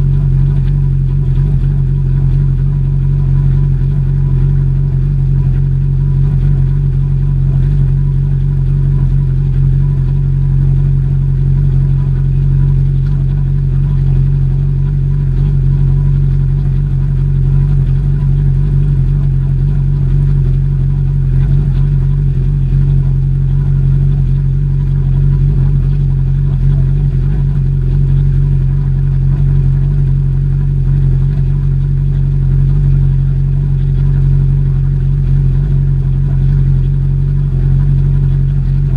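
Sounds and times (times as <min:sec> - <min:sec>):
engine running with loud drone: 0:00.0 - 0:38.9.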